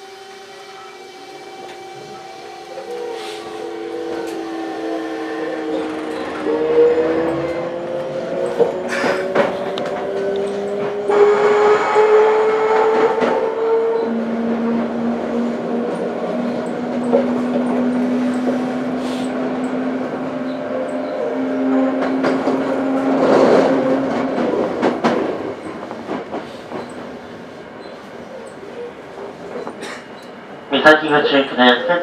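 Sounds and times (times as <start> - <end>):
train running noise with motor tone: 0.0 - 32.0
wheels clicking over rails: 5.6 - 14.2.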